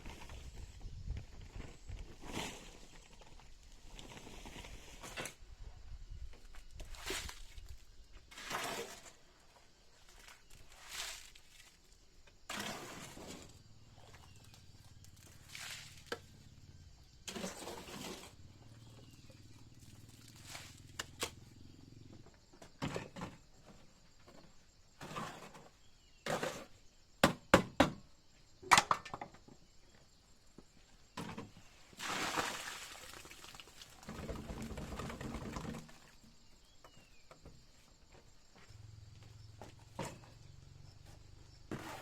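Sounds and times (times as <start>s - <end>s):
knocks and thuds: 27.2s - 28.0s.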